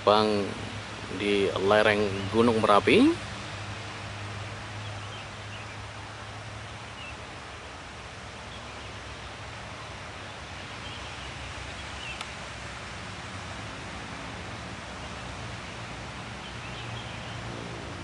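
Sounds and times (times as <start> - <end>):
outdoor rustling: 0.0 - 18.0.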